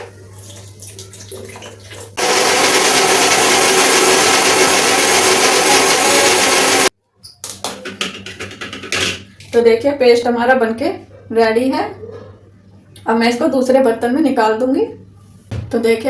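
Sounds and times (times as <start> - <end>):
mixer grinder grinding: 2.2 - 6.9.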